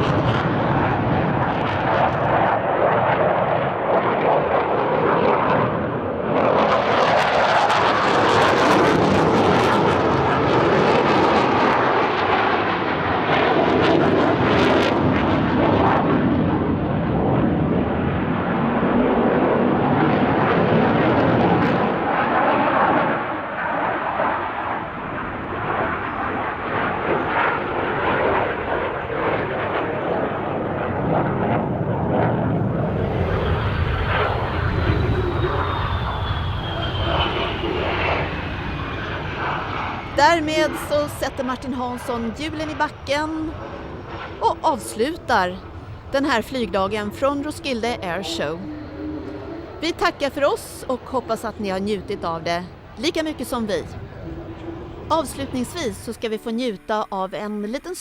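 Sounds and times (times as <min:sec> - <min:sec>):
fighter jet engine: 0:00.0 - 0:56.2
thin falling whine: 0:33.0 - 0:58.0.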